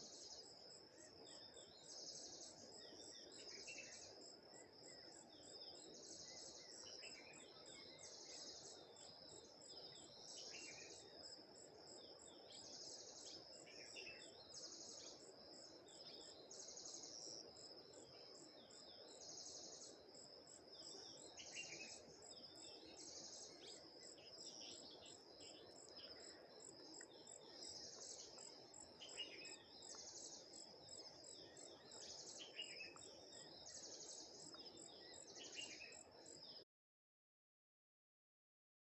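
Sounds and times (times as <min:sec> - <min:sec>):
insect chorus with high trill: 0:00.0 - 0:36.6
bird chirps: 0:20.8 - 0:36.6.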